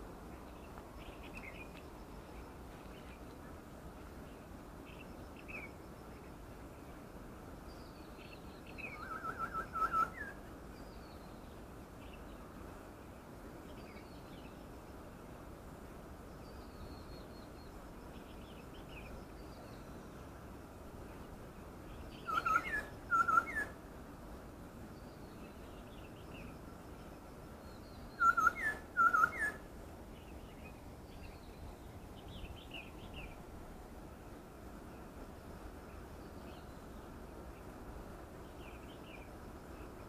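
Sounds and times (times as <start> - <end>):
steady background hiss: 0.0 - 40.0
faint bird chirps: 7.6 - 12.5, 16.3 - 20.3, 21.1 - 23.8, 24.9 - 33.4.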